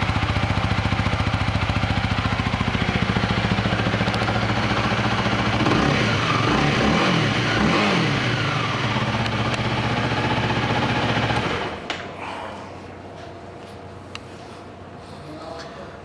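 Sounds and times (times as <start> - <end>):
motorcycle engine revving and idling: 0.0 - 11.9.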